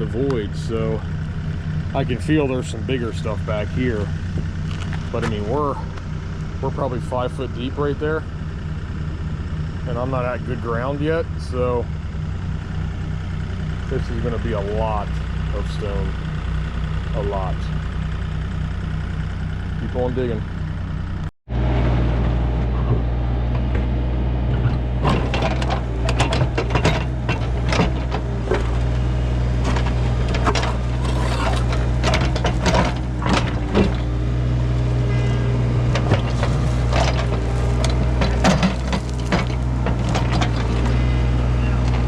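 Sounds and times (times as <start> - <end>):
excavator diesel engine: 0.0 - 42.0
bucket knocking and scraping: 29.6 - 34.1, 35.9 - 41.0.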